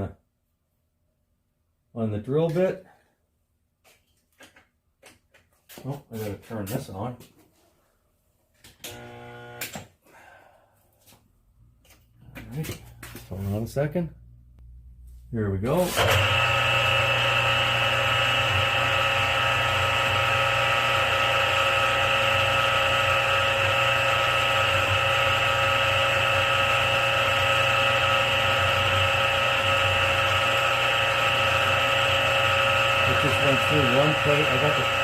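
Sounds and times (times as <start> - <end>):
milling machine drilling metal: 15.9 - 35.0.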